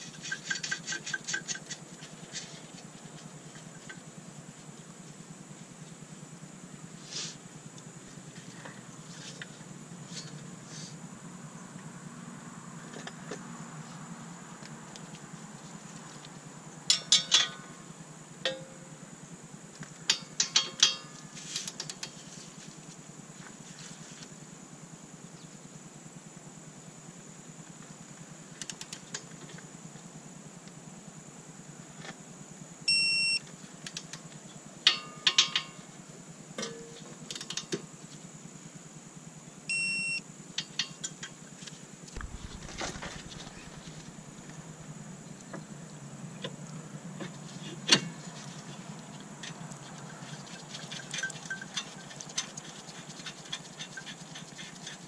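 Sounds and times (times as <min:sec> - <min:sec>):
short electronic beeps: 0:32.9 - 0:33.4, 0:39.7 - 0:40.2.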